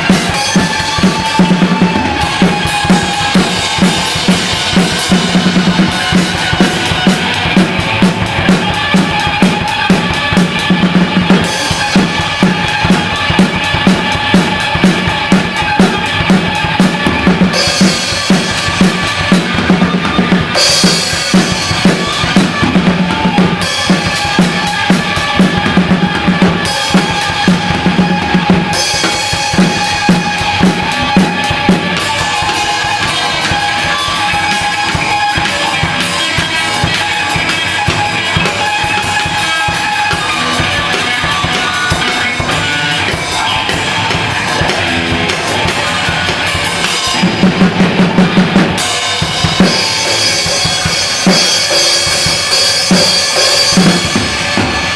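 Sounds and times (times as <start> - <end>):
band playing music: 0.0 - 54.9.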